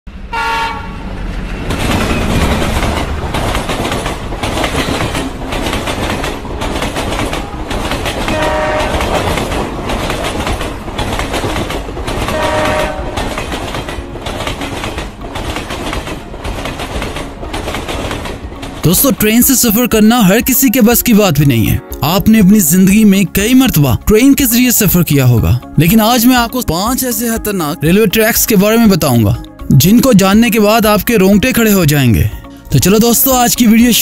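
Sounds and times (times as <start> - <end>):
train horn: 0.2 - 1.2, 8.2 - 9.4, 12.2 - 14.1
train wheels clattering: 1.5 - 19.0.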